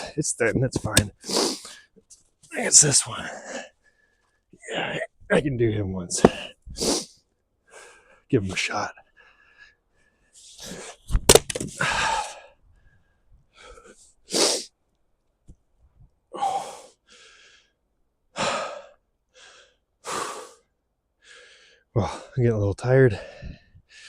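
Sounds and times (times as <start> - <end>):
man breathing heavily: 1.2 - 2.0, 3.1 - 5.0, 6.2 - 8.3, 9.0 - 11.0, 11.8 - 14.7, 16.3 - 17.8, 18.4 - 22.4, 23.2 - 24.0
axe splitting a log: 11.2 - 11.7.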